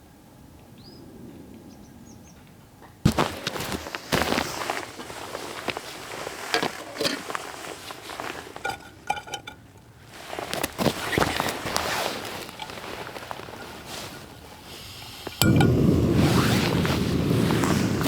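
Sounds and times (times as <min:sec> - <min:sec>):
cookware knocking and clinking: 0:08.6 - 0:09.6.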